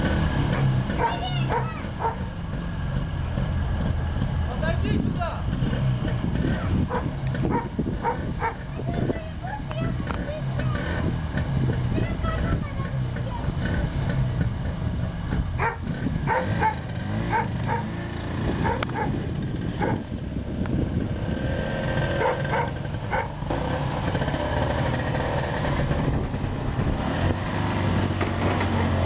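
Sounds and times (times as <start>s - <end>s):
snowmobile engine running: 0.0s - 29.0s
dog barking: 1.0s - 2.3s, 6.9s - 8.6s, 15.6s - 17.9s, 18.6s - 19.2s, 19.8s - 20.0s, 22.2s - 23.3s.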